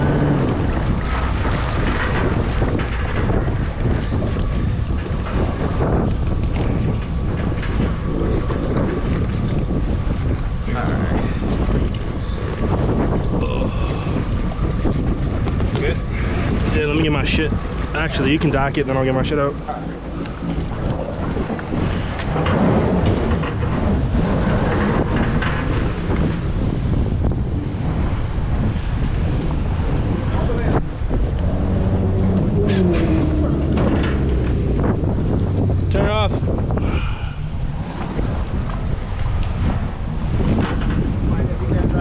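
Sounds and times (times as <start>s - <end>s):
jet ski engine running: 0.0s - 42.0s
wind buffeting microphone: 0.0s - 42.0s
water splashing: 16.0s - 26.5s.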